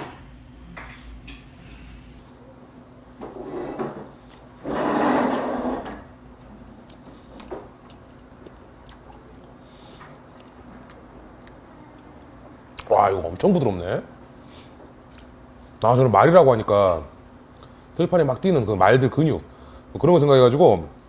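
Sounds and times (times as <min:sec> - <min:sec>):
mouth and chewing noises: 0:06.4 - 0:12.9, 0:14.6 - 0:15.4.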